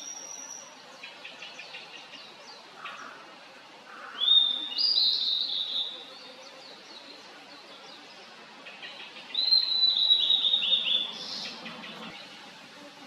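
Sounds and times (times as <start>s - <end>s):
bird singing: 4.1s - 12.4s.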